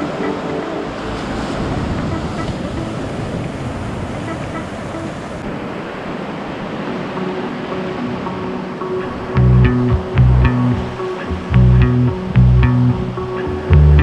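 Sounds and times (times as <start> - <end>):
wind buffeting microphone: 0.0 - 5.8
sea surf washing ashore: 0.0 - 13.7.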